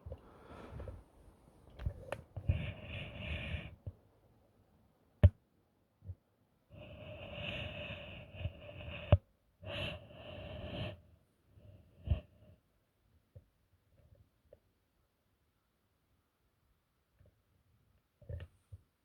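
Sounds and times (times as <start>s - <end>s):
ceiling fan whirring: 0.0s - 3.8s.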